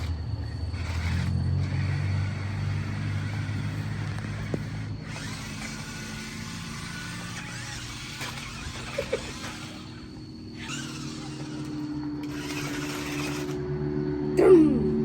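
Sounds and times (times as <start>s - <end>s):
toy car electric motor whining: 0.0s - 13.7s.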